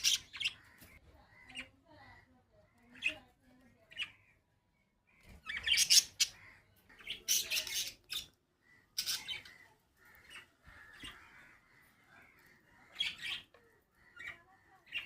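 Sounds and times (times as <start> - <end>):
parrots squawking harshly: 0.0 - 0.9, 5.4 - 13.4
parrots chattering: 0.0 - 15.0.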